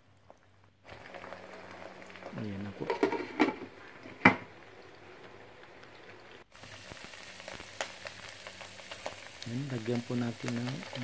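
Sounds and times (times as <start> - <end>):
meat sizzling in hot oil: 0.8 - 11.0.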